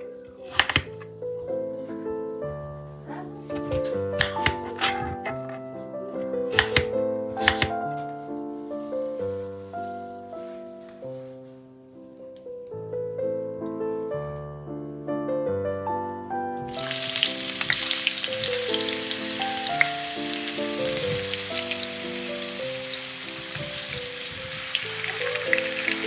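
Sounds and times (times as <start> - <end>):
soft piano music: 0.0 - 26.0
food sizzling in hot oil: 16.7 - 26.0.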